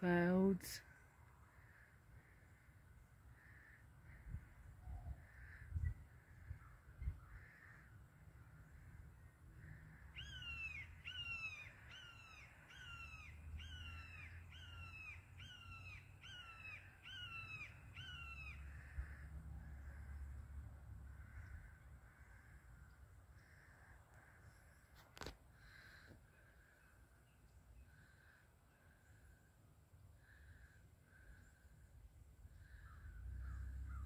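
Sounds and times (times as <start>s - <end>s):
bird calling: 9.6s - 20.3s, 32.5s - 34.0s.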